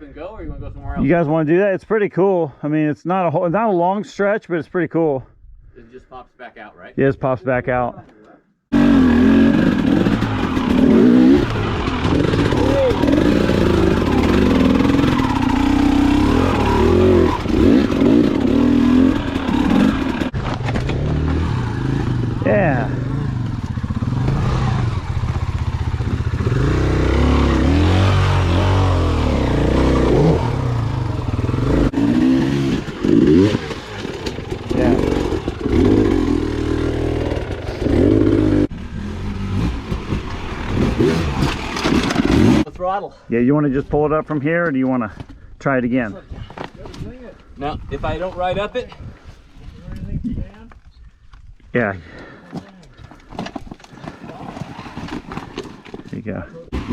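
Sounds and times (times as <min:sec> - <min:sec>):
dirt bike engine revving: 0:08.7 - 0:42.7, 0:56.7 - 0:56.9.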